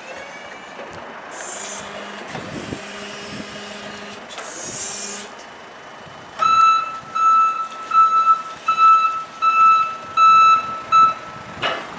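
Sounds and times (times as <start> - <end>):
forklift reversing alarm beeps: 6.4 - 11.5.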